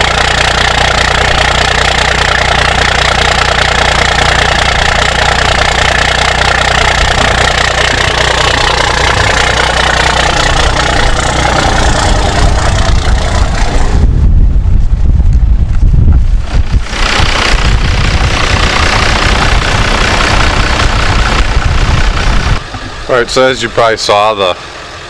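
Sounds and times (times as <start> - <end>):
diesel engine idling: 0.0 - 25.0
wind buffeting microphone: 4.6 - 23.2.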